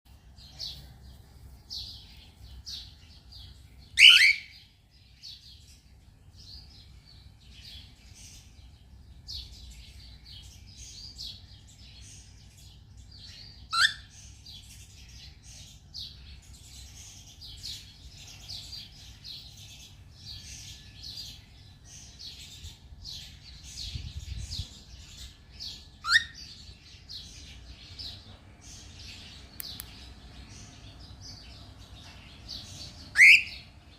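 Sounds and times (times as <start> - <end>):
bird chirping: 0.1 - 33.9
loud sweeping bird call: 4.0 - 4.6, 33.1 - 33.7.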